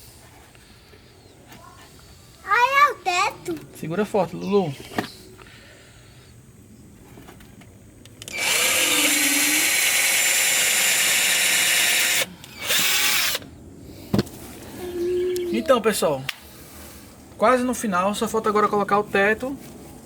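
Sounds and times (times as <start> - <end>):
power drill driving screw: 8.2 - 13.4.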